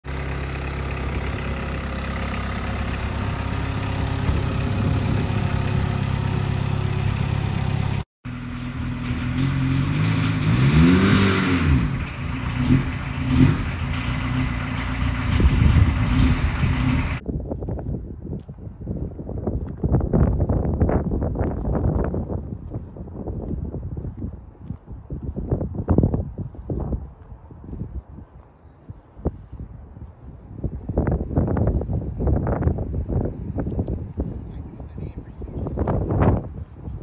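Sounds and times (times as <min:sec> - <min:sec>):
car engine idling: 0:00.0 - 0:10.6, 0:11.6 - 0:17.2
engine revving: 0:00.1 - 0:17.2.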